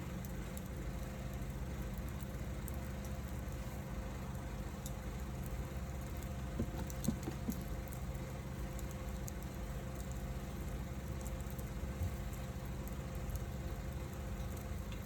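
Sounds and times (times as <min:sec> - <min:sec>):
low rumble of fire: 0:00.0 - 0:15.0
wood fire crackling: 0:00.0 - 0:15.0
fire popping: 0:04.8 - 0:14.9.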